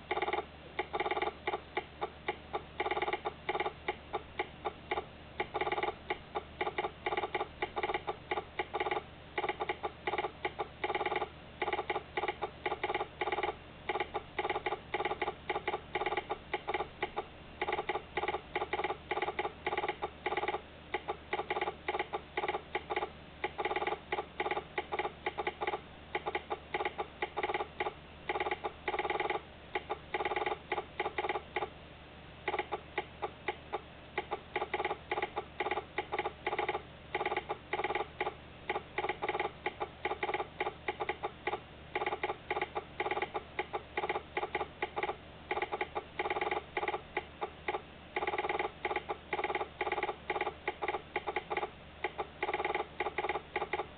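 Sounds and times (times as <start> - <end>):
rapid mechanical clicking: 0.0 - 31.8, 32.4 - 53.9.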